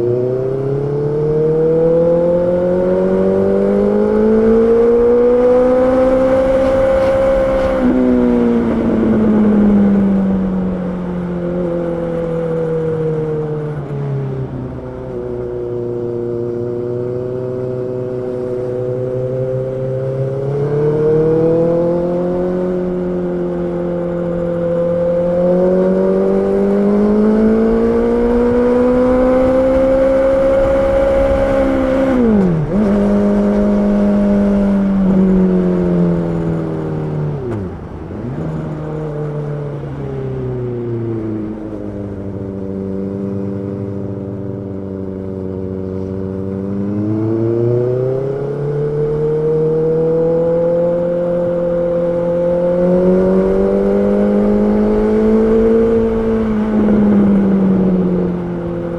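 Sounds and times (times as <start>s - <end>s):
motorcycle engine running: 49.0s - 58.9s.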